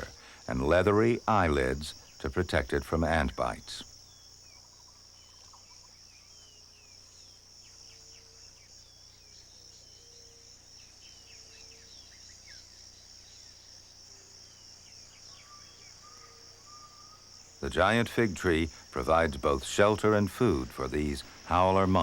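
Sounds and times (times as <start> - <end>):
high insect drone: 0.0 - 22.0
bird chirps: 3.8 - 17.9.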